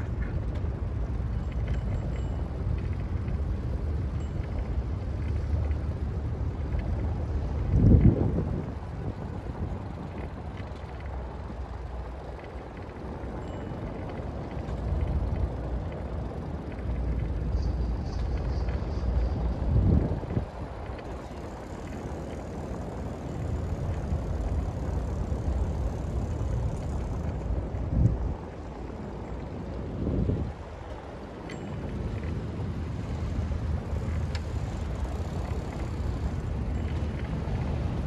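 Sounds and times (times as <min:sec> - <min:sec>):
city traffic rumble: 0:00.0 - 0:38.0
wind buffeting microphone: 0:00.0 - 0:38.0.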